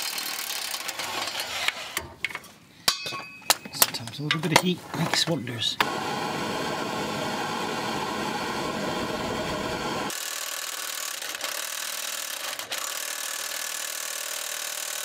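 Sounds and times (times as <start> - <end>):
torch flame hissing: 5.8 - 10.1.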